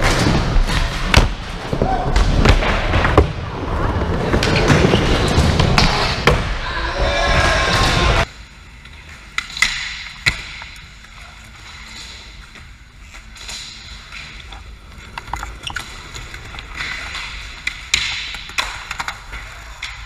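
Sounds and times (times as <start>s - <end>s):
skateboards clacking and knocking: 13.2s - 20.0s.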